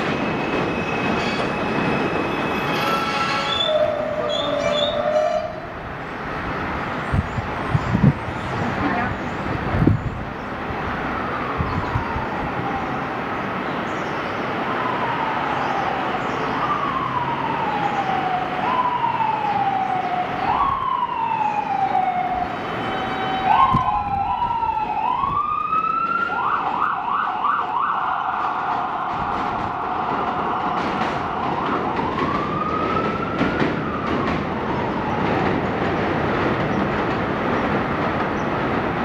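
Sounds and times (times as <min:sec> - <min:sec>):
emergency siren wailing and yelping: 0:03.6 - 0:05.8, 0:11.0 - 0:13.2, 0:14.6 - 0:35.8.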